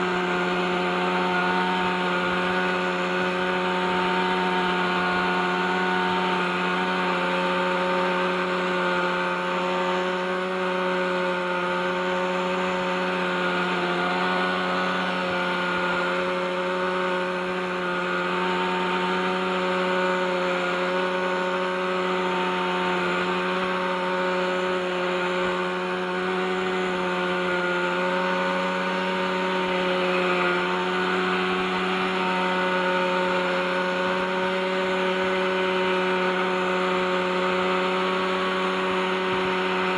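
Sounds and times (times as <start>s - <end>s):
model helicopter engine running: 0.0s - 39.9s.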